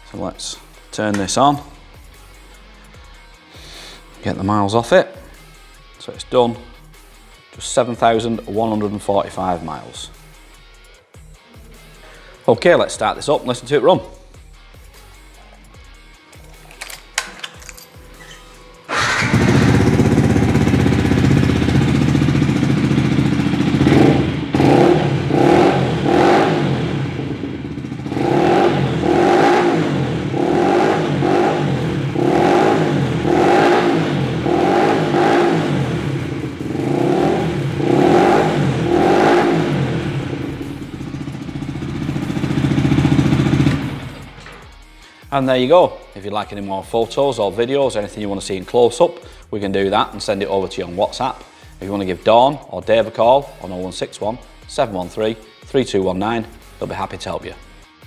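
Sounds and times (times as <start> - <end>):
motorcycle engine revving: 18.9 - 44.6.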